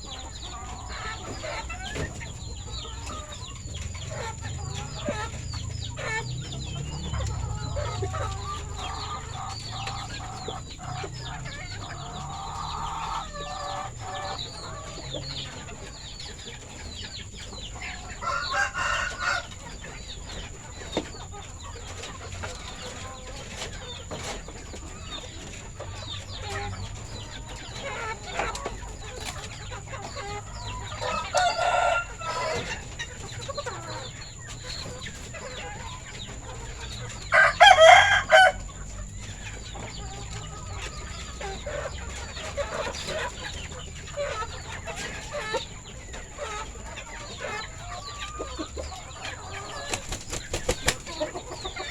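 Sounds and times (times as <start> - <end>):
chickens clucking: 0.0 - 51.9
rooster crowing: 18.0 - 19.6, 30.7 - 32.7, 37.2 - 38.8.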